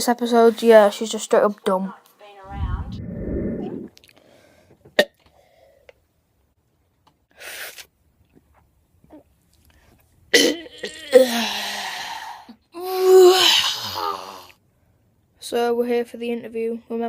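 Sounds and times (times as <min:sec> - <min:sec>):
short breathy rush: 0:02.5 - 0:03.9.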